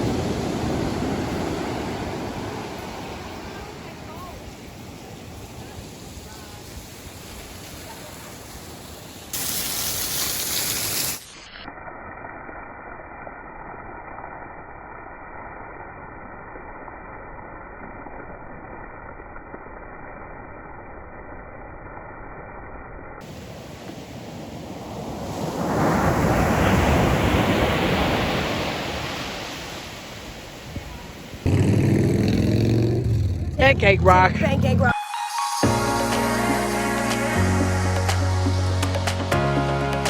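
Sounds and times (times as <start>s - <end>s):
ocean surf rushing: 0.0s - 11.3s, 23.2s - 31.6s, 32.2s - 39.4s.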